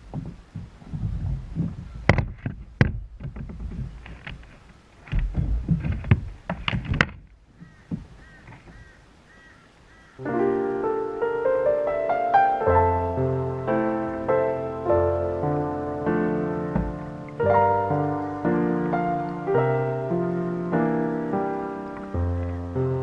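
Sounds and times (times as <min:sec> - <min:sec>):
irregular knocks and clicks: 0:00.0 - 0:08.8, 0:16.7 - 0:19.4
faint short bird calls: 0:07.6 - 0:10.3
soft piano music: 0:10.2 - 0:23.0.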